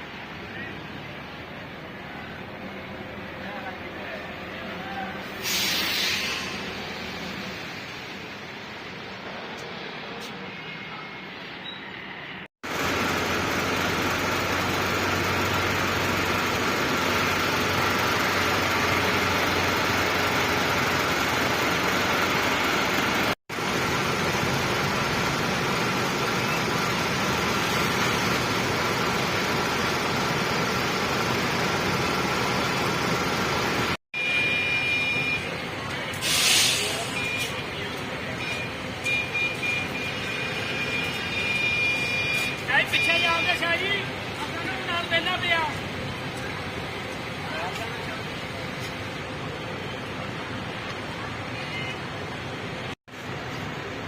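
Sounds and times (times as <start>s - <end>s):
road and traffic noise: 0.0s - 54.0s
bus engine running: 12.6s - 34.0s, 43.7s - 54.0s.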